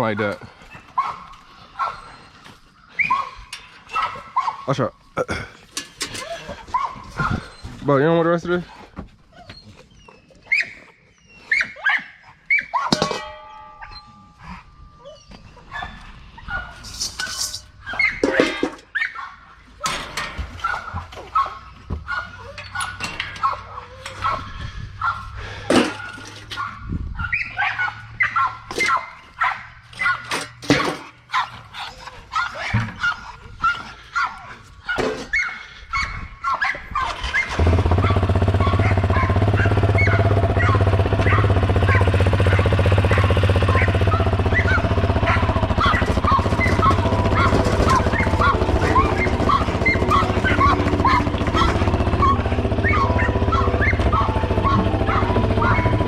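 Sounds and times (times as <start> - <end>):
dogs yipping and whining: 0.0 - 5.2, 5.8 - 56.0
clicks and clatter: 16.8 - 18.9, 45.0 - 52.2
loud steady low hum: 41.0 - 56.0.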